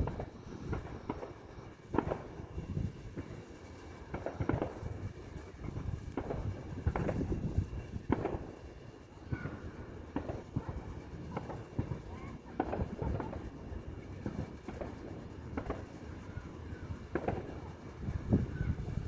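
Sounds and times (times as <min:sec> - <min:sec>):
rumble: 0:00.0 - 0:03.3
fireworks booming and cracking: 0:00.0 - 0:19.0.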